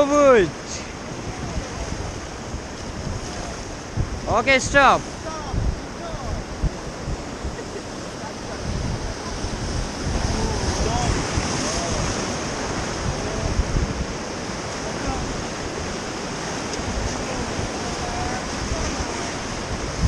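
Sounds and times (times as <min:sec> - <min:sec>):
river water rushing: 0:00.0 - 0:20.0
faint voices: 0:05.2 - 0:13.7.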